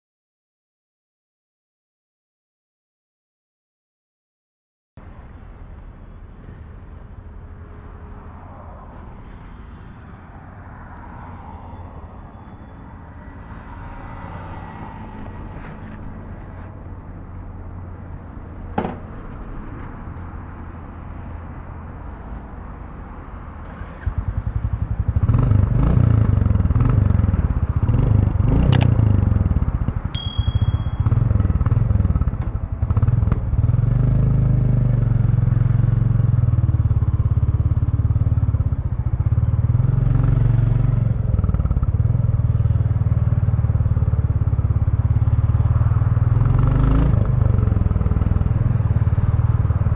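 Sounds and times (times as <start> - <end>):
motorcycle moving off: 23.6 - 49.9
motorcycle engine idling: 30.2 - 31.3.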